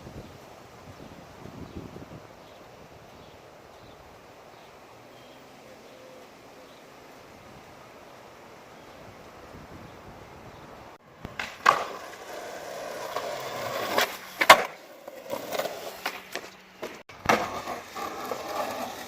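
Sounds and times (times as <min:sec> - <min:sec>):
skateboard rolling: 0:11.0 - 0:19.0
skateboard clacking on ground: 0:11.2 - 0:19.0.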